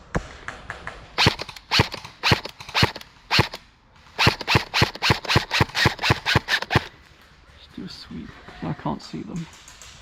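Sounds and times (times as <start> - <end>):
airsoft rifle shots: 1.2 - 7.0.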